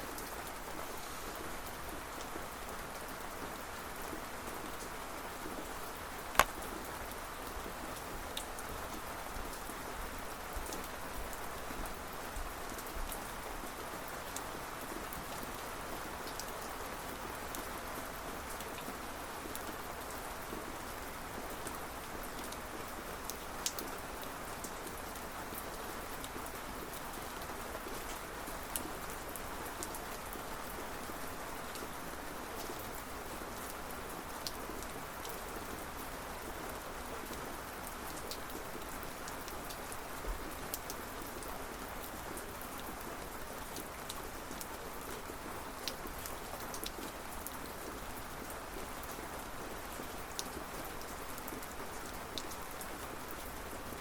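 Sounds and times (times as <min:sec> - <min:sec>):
steady rain: 0:00.0 - 0:54.0
raindrops tapping close by: 0:06.3 - 0:06.8.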